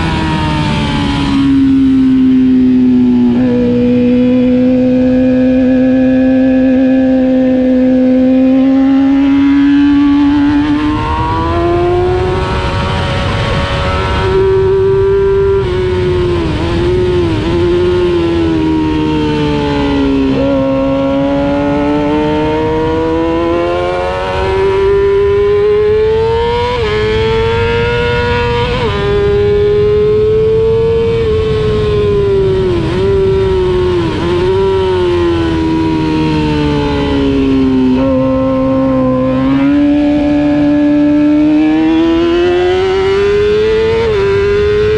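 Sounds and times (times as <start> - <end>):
motorcycle engine revving: 0.0 - 44.9
wind rush: 9.0 - 44.9.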